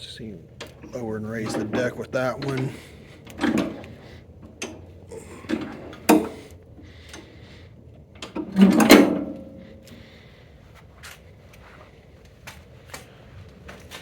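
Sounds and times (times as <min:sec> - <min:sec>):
metal lever clunks and rattles: 0:00.6 - 0:06.5, 0:08.2 - 0:09.9.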